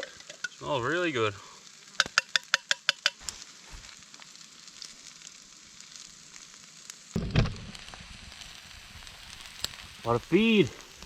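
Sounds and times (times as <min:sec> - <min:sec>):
food sizzling in a frying pan: 0:00.0 - 0:11.0
thud: 0:07.2 - 0:07.7.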